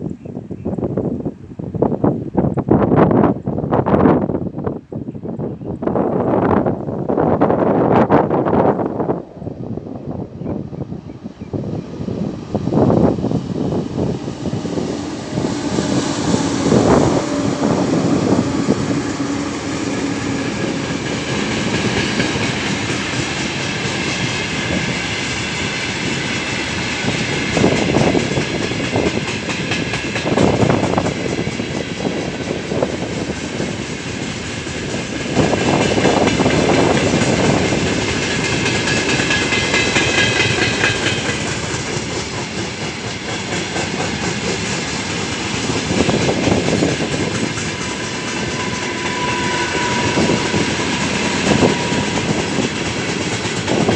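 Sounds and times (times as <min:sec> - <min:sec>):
freight train rolling past: 0:00.0 - 0:53.9
wheels clacking over rail joints: 0:14.2 - 0:32.2, 0:32.8 - 0:53.9.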